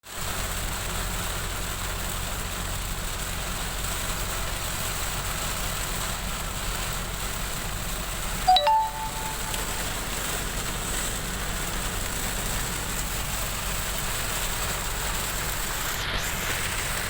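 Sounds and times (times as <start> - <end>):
heavy rain: 0.0 - 17.0
road noise: 9.6 - 17.0.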